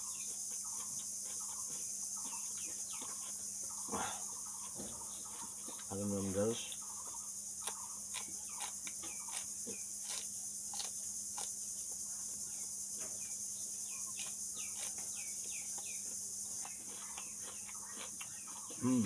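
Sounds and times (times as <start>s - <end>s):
insects chirring: 0.0s - 19.0s
crisp crunching bites: 7.6s - 11.6s, 14.1s - 16.0s.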